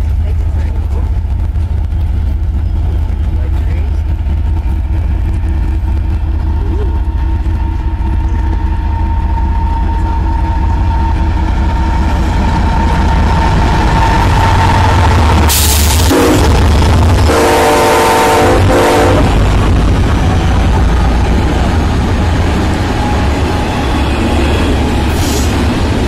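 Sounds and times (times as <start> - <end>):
diesel locomotive engine rumble: 0.0 - 26.0
train horn blast: 15.6 - 19.4.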